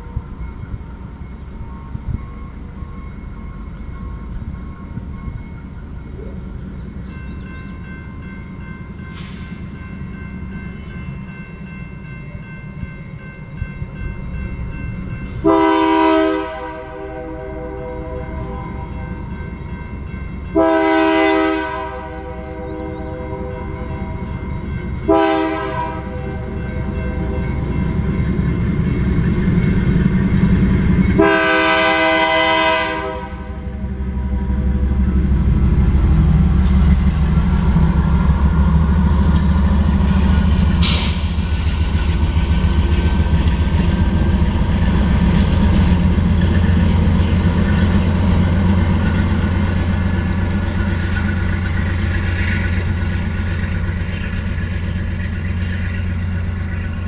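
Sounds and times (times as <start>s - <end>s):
locomotive engine rumbling: 0.0s - 57.0s
train wheels rumbling: 0.0s - 57.0s
locomotive horn blasts: 15.4s - 19.3s, 20.5s - 27.5s, 31.1s - 34.0s.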